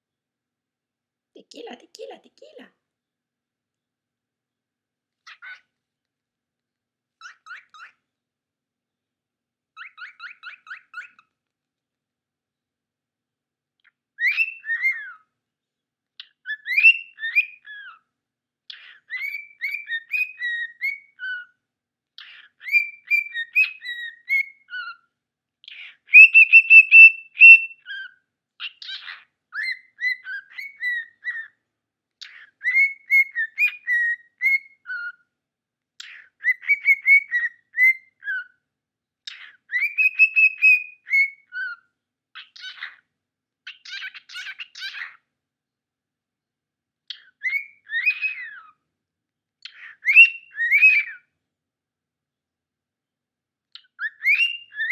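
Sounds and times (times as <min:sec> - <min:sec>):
cockatiel whistling a tune: 0:09.8 - 0:11.2, 0:14.2 - 0:15.2, 0:16.2 - 0:18.0, 0:18.7 - 0:21.5, 0:22.2 - 0:25.0, 0:25.7 - 0:31.5, 0:32.2 - 0:35.2, 0:36.0 - 0:38.6, 0:39.3 - 0:41.8, 0:42.4 - 0:43.0, 0:43.7 - 0:45.2, 0:47.1 - 0:48.7, 0:49.6 - 0:51.3, 0:53.8 - 0:54.9.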